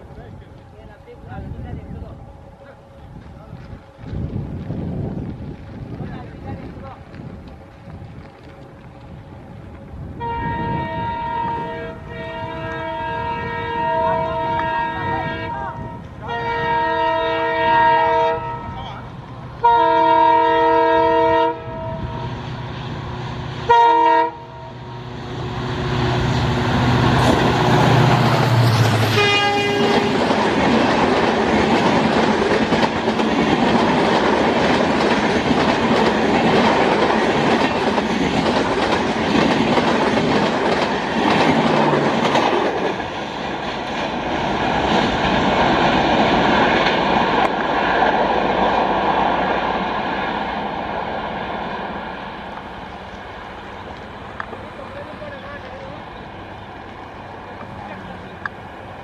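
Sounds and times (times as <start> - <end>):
locomotive engine rumble: 0.0 - 59.0
train wheels rolling and clattering: 3.0 - 10.6, 25.3 - 59.0
locomotive multi-tone horn: 10.2 - 18.9, 19.6 - 22.3, 23.7 - 24.8, 28.5 - 30.3.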